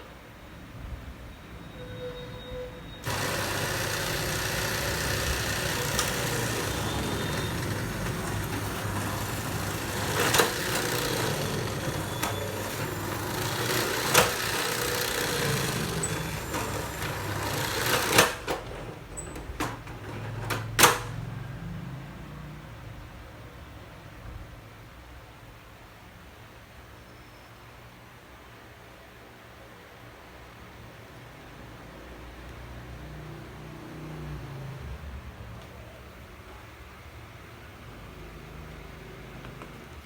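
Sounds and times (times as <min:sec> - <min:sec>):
electric drill motor running: 0:03.0 - 0:20.4.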